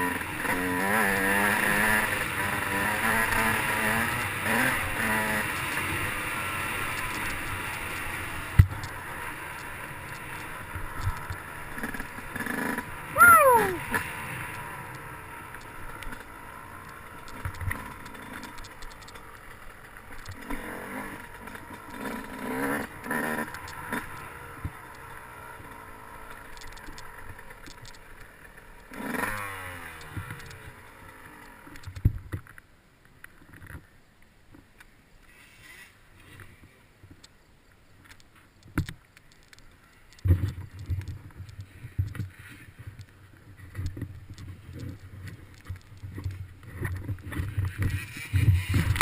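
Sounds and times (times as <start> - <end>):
dirt bike engine revving: 0.0 - 15.5, 20.4 - 26.2, 28.8 - 31.7.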